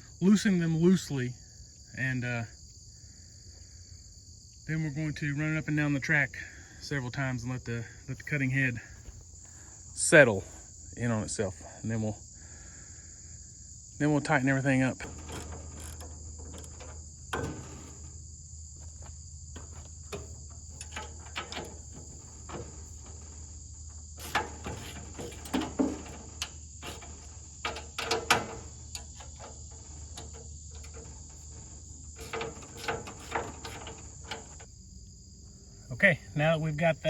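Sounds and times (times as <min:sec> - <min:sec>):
crickets chirping: 0:00.0 - 0:37.0.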